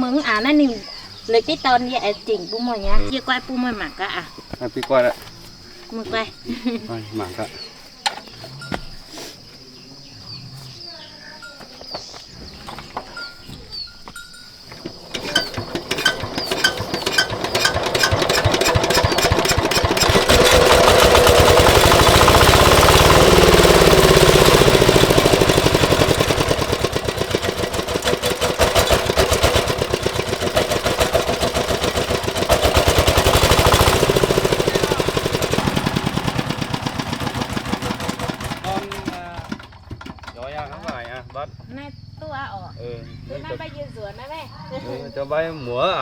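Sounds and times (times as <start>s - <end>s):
diesel engine knocking: 14.8s - 41.5s.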